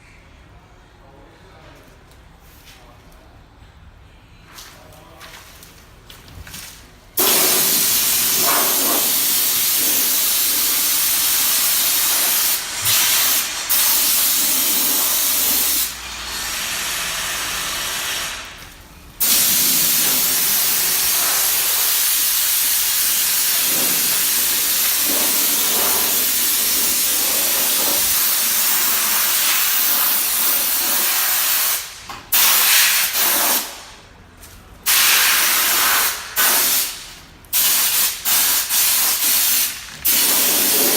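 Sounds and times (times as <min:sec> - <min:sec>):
pressurised spray hissing: 0:07.2 - 0:18.5, 0:19.2 - 0:33.7, 0:34.9 - 0:40.9.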